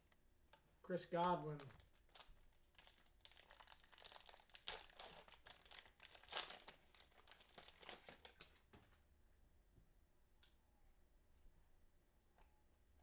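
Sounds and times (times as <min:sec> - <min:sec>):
cellophane wrapper crinkling: 0:00.5 - 0:08.7.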